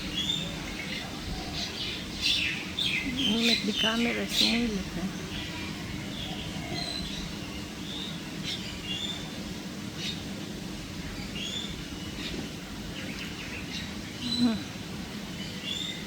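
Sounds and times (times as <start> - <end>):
birds whistling and calling: 0.0 - 5.5, 6.1 - 9.3, 11.2 - 14.7
low background hum: 0.0 - 16.0.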